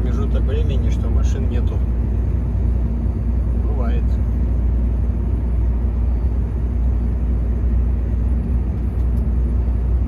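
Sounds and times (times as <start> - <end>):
truck diesel engine and road noise: 0.0 - 10.0.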